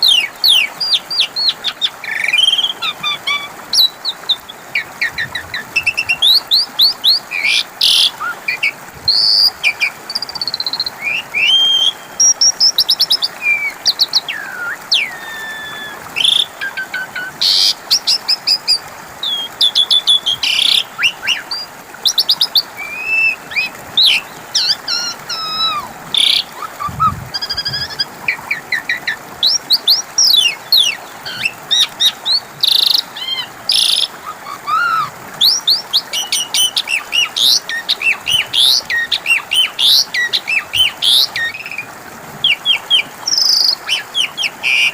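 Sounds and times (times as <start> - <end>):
starling singing varied song: 22.9 - 32.4.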